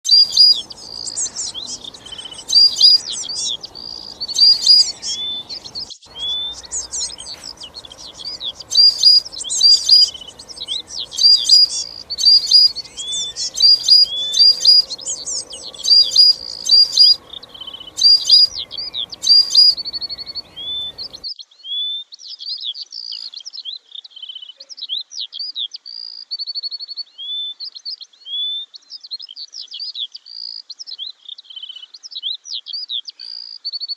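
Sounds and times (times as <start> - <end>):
birds chirping and twittering: 0.0 - 21.2.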